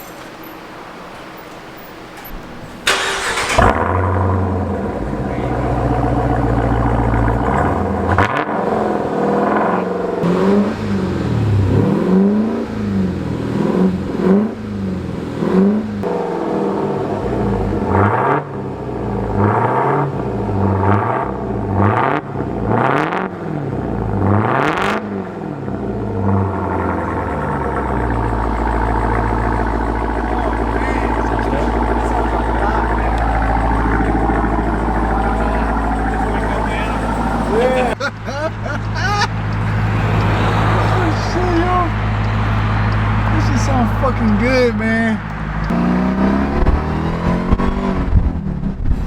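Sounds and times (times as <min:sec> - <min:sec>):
engine rumbling idle: 0:00.0 - 0:11.7, 0:25.2 - 0:45.7
car engine starting: 0:00.0 - 0:49.0
engine revving: 0:00.0 - 0:49.0.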